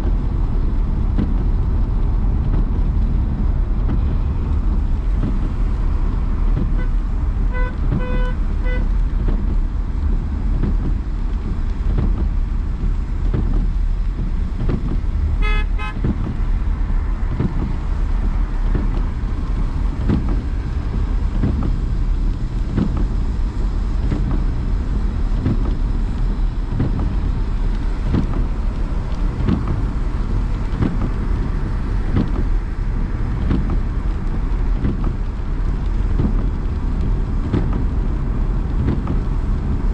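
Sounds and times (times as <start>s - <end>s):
car driving road and wind noise: 0.0s - 39.9s
car horn short beeps: 6.7s - 8.9s, 15.4s - 16.1s
higher car horn: 6.7s - 8.9s, 15.4s - 16.1s.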